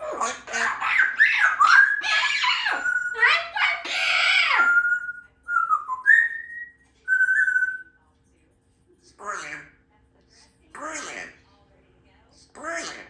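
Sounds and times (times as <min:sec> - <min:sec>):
parrot sweeping calls: 0:00.0 - 0:05.1, 0:10.8 - 0:11.4, 0:12.6 - 0:13.0
parrot whistling: 0:00.0 - 0:08.0.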